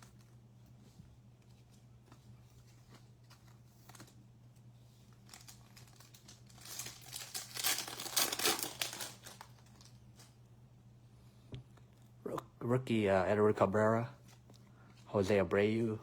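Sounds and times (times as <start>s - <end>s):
cards being handled: 0.0s - 10.4s
foil wrapper crinkling: 5.0s - 10.4s.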